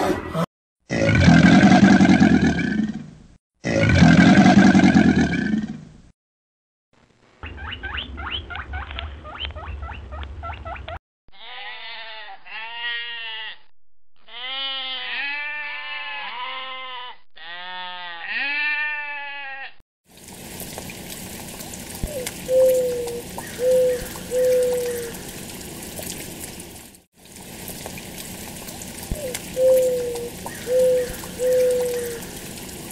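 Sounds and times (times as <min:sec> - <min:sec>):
sheep bleating: 0:11.3 - 0:19.8
pigeons cooing: 0:22.0 - 0:25.5, 0:29.0 - 0:32.8.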